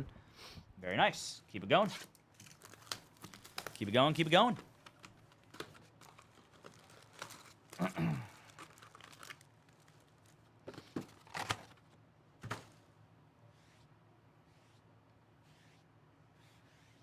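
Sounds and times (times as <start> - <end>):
wrappers crinkling and tearing: 1.9 - 10.5, 11.1 - 11.8.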